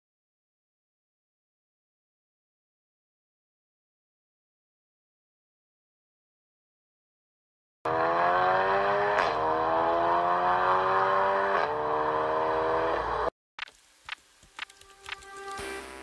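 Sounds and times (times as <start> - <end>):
car engine accelerating: 7.9 - 13.3
faint clicks: 13.6 - 15.6.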